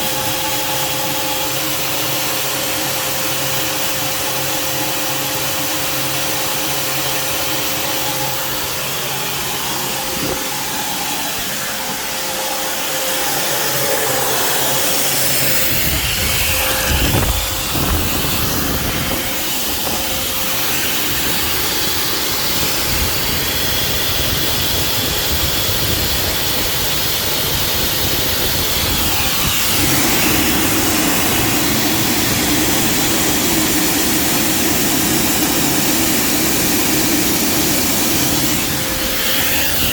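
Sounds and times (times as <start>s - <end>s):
deeper rumble: 14.6s - 20.7s
steady hiss: 28.5s - 39.9s.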